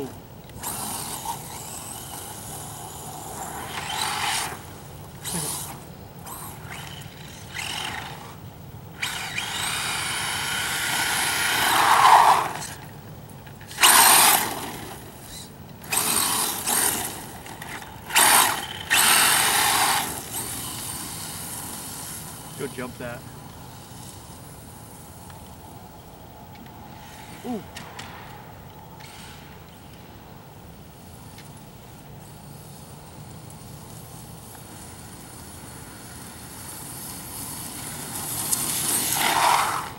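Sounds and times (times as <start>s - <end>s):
electric motor whining: 0.0s - 12.9s, 13.6s - 23.0s.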